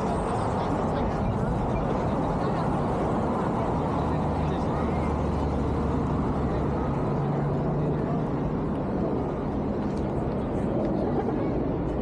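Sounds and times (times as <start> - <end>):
busy city noise: 0.0 - 12.0.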